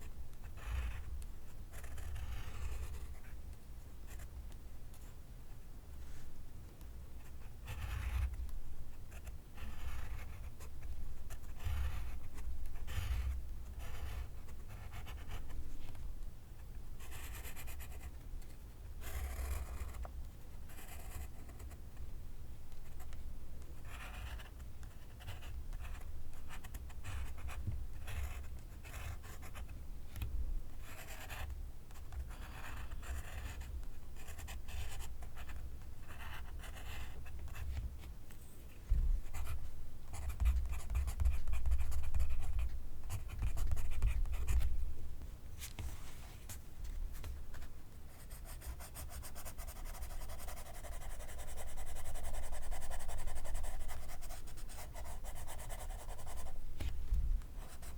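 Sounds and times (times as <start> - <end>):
pencil writing on paper: 7.2 - 8.4, 9.1 - 10.6, 11.3 - 15.5, 19.0 - 20.0, 20.7 - 21.8, 23.9 - 29.7, 30.8 - 37.6, 39.2 - 44.6, 48.2 - 56.6.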